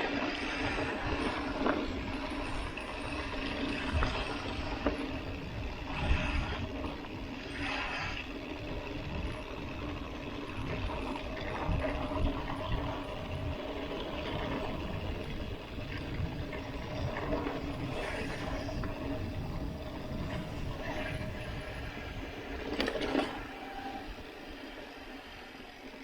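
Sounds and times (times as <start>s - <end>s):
bike tyres rolling and rattling: 0.0s - 26.0s.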